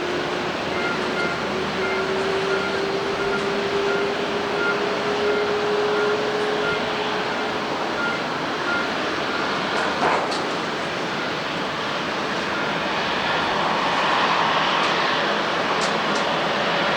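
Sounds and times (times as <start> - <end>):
jet engines running: 0.0 - 16.9.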